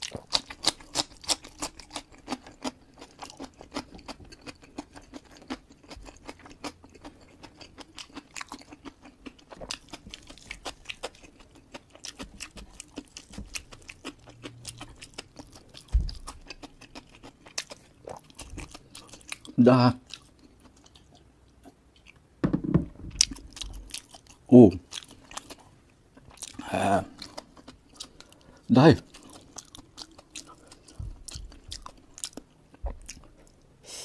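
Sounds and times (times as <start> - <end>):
chewing with wet mouth clicks: 0.0 - 22.2, 23.2 - 33.6
dull thump: 22.4 - 23.2.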